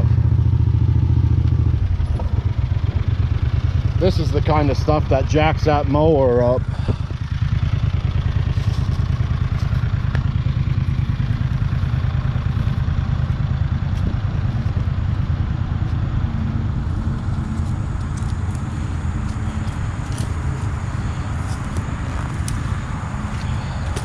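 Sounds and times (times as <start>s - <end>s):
mower engine running: 0.0s - 24.0s.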